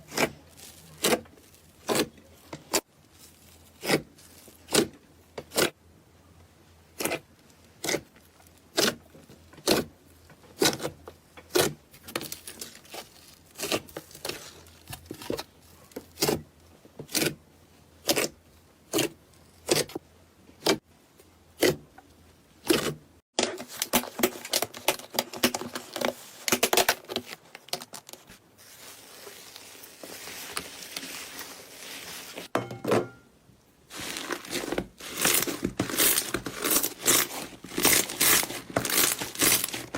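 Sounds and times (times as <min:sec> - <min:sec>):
slime crackling and crinkling: 0:00.0 - 0:05.8, 0:07.0 - 0:16.5, 0:23.4 - 0:32.5, 0:33.9 - 0:39.9.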